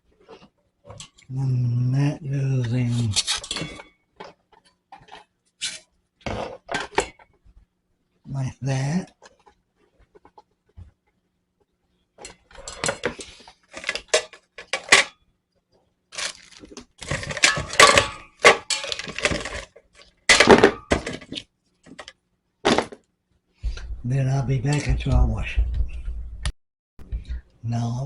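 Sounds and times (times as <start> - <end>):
plastic parts clicking and clattering: 3.1 - 7.4, 12.2 - 15.2, 16.1 - 23.1.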